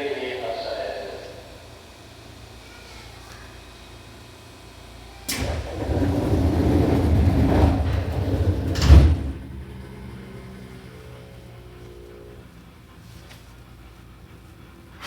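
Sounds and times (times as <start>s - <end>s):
sliding doors closing: 5.2s - 11.8s
doors shutting thump: 5.3s - 10.4s.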